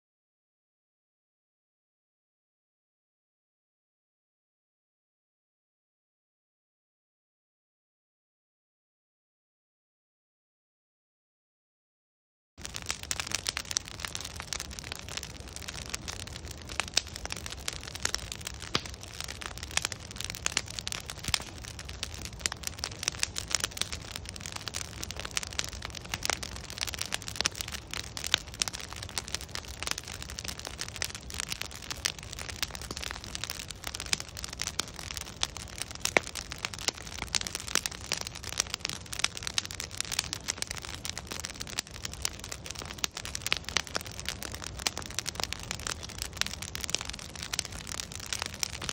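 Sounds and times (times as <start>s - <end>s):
wood fire crackling and popping: 12.6s - 48.9s.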